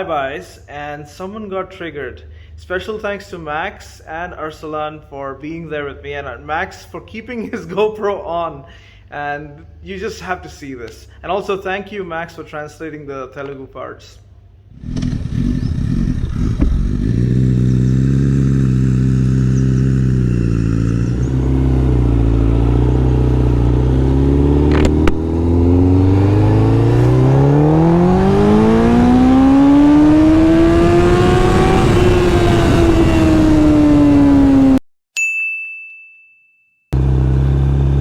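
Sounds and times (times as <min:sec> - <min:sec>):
motorcycle engine revving: 0:14.7 - 0:34.8, 0:37.0 - 0:38.0
sharp click: 0:24.7 - 0:25.2.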